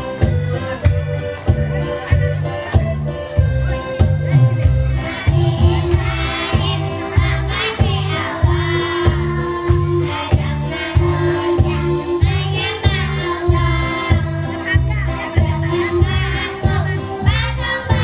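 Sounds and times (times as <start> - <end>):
backing track with beat: 0.0 - 18.0
children singing together: 4.6 - 18.0.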